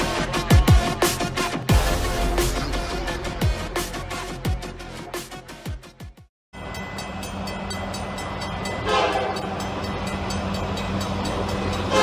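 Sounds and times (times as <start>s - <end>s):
crossing bell dinging: 6.6s - 12.0s
diesel locomotive engine rumble: 6.6s - 12.0s
train horn blast: 8.8s - 9.6s, 11.7s - 12.0s.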